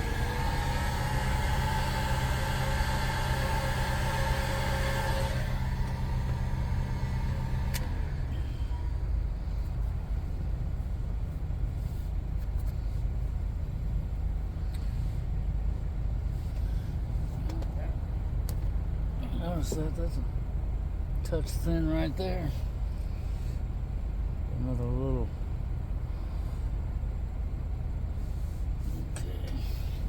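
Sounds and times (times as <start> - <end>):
heat gun blowing: 0.0 - 8.0.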